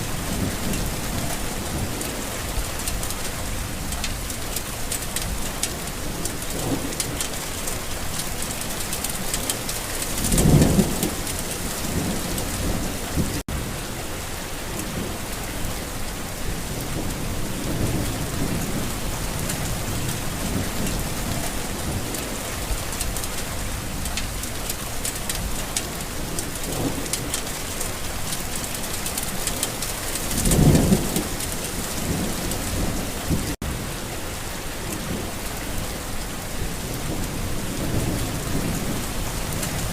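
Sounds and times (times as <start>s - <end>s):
thunder rumbling: 0.0s - 13.8s, 16.3s - 34.0s
steady rain falling: 0.0s - 39.9s.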